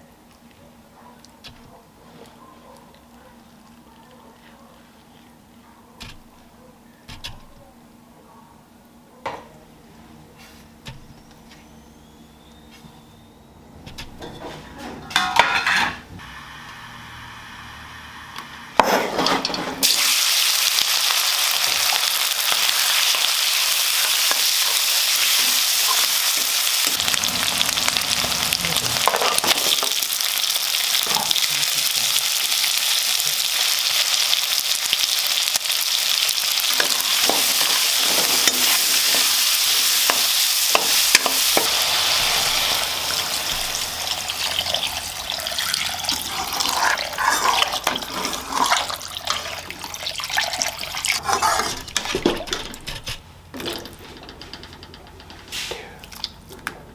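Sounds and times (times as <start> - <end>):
food sizzling in hot oil: 16.2 - 52.2.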